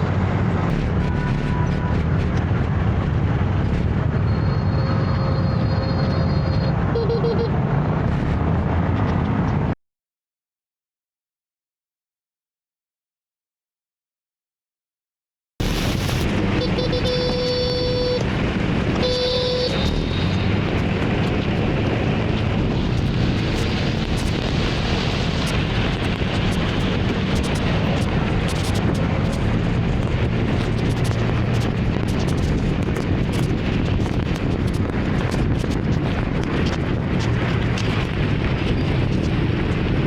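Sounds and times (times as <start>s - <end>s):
traffic: 0.0s - 9.8s, 15.6s - 40.0s
horn honks: 4.6s - 7.6s, 16.4s - 18.3s, 19.0s - 20.6s.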